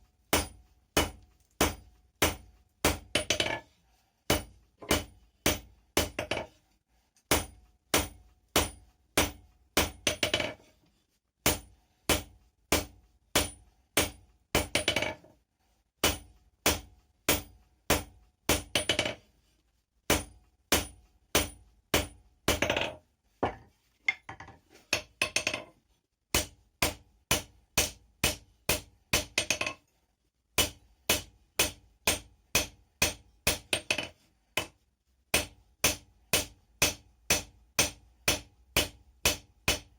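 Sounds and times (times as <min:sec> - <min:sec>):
hammer striking metal on anvil: 0:00.3 - 0:03.6, 0:04.3 - 0:06.4, 0:07.3 - 0:10.5, 0:11.4 - 0:15.1, 0:16.0 - 0:19.1, 0:20.1 - 0:22.9, 0:26.4 - 0:29.8, 0:30.6 - 0:34.7, 0:35.3 - 0:39.9.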